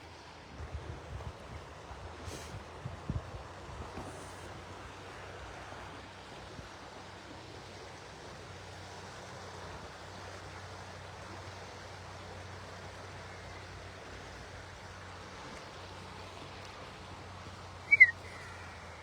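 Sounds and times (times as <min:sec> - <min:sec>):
river water rushing: 0:14.2 - 0:19.0.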